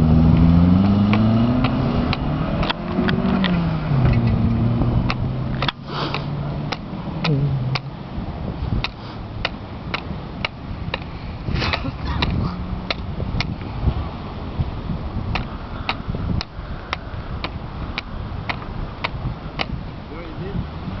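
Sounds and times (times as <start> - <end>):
rally car engine revving: 0.0 - 10.4, 11.0 - 15.2
sharp clicks: 0.4 - 7.9, 8.8 - 11.1, 11.7 - 13.7, 15.3 - 19.8.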